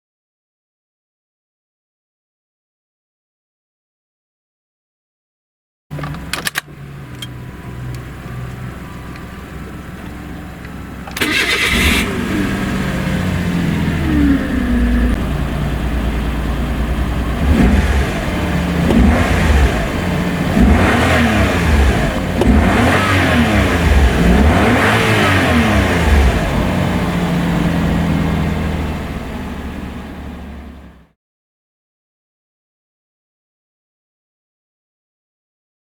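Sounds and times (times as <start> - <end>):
car engine idling and revving: 5.9 - 31.2
starter motor cranking: 10.6 - 13.2.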